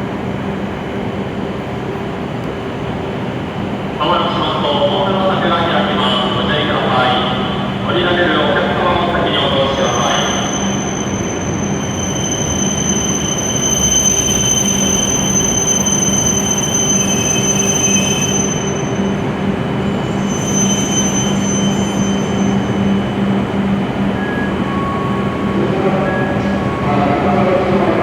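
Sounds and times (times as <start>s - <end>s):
train running noise: 0.0s - 28.0s
high-pitched wheel squeal: 9.7s - 19.2s, 19.8s - 23.1s.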